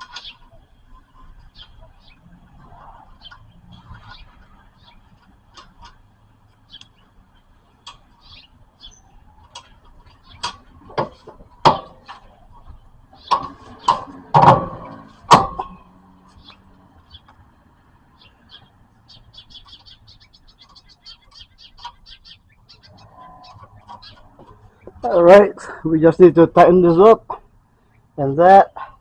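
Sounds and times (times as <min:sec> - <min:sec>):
ringing metal knocks and clanks: 0:10.4 - 0:12.3, 0:13.2 - 0:16.0.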